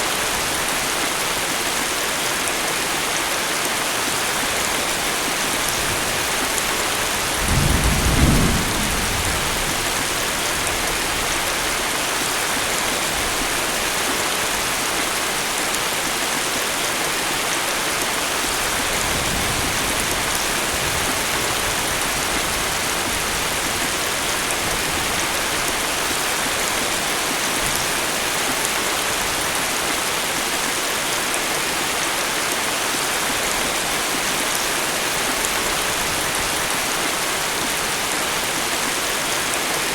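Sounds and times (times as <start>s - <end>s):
heavy rain: 0.0s - 39.9s
thunder rumbling: 7.1s - 11.1s.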